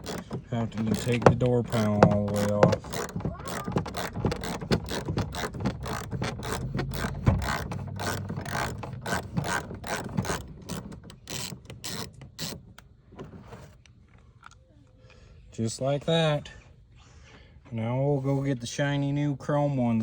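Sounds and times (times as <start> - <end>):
ratchet wrench clicking: 0.0 - 12.6.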